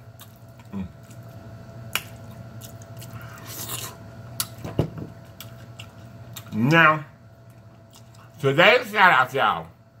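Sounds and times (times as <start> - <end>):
steady low hum: 0.0 - 10.0
chewing: 2.0 - 4.6, 5.3 - 6.6, 7.4 - 8.4.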